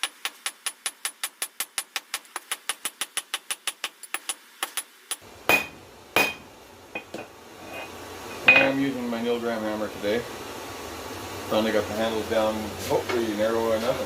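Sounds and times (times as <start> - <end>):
hammer striking steel on anvil: 5.5 - 8.8.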